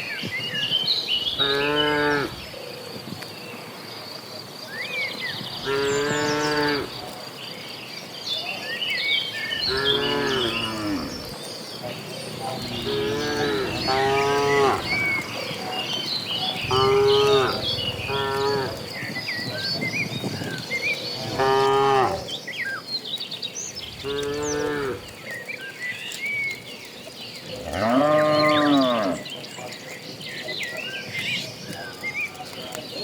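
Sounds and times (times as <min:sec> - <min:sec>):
small birds chirping: 0:00.0 - 0:33.0
cattle mooing: 0:01.4 - 0:02.4, 0:05.6 - 0:07.0, 0:09.6 - 0:15.6, 0:16.5 - 0:18.9, 0:21.2 - 0:22.3, 0:24.0 - 0:25.1, 0:27.6 - 0:29.3.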